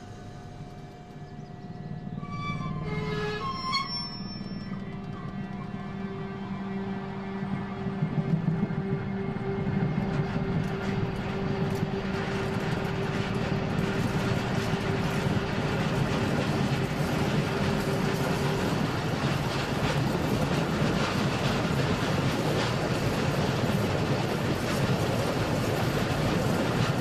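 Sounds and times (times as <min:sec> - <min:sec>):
train wheels on rails: 0:03.1 - 0:27.0.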